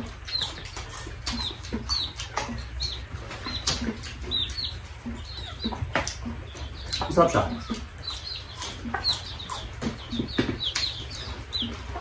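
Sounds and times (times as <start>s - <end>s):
people eating with hands: 0.0s - 12.0s
small bird chirping: 0.0s - 12.0s.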